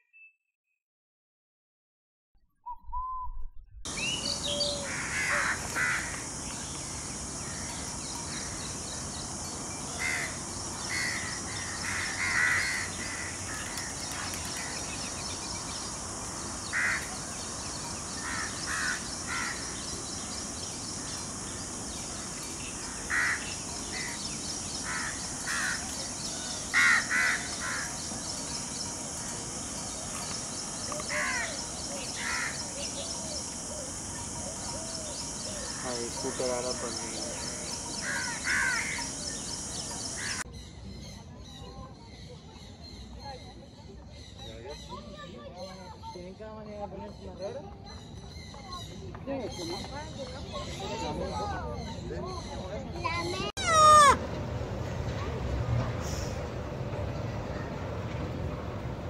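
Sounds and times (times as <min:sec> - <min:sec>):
steady high-pitched hiss: 0:03.9 - 0:40.4.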